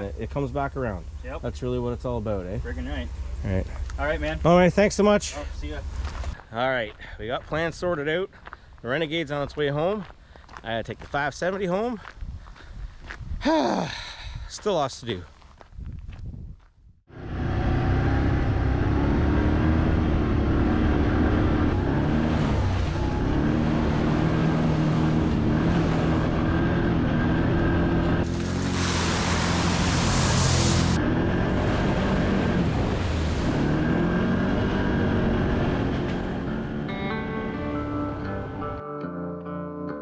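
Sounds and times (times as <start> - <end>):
engine running under load: 17.1 - 37.0
loud rushing hiss: 28.3 - 31.0.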